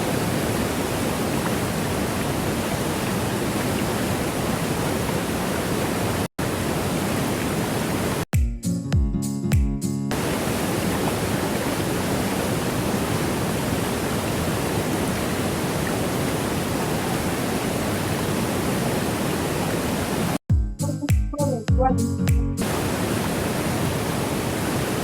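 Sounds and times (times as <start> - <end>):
waterfall roar: 0.0 - 8.2, 10.1 - 20.4, 22.6 - 25.0
music with deep bass: 8.4 - 10.1, 20.5 - 22.6.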